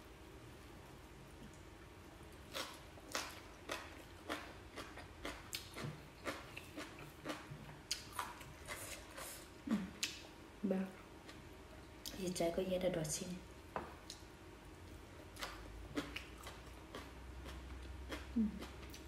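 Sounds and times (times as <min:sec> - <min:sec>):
person chewing rice: 0:02.4 - 0:10.2, 0:15.2 - 0:19.0.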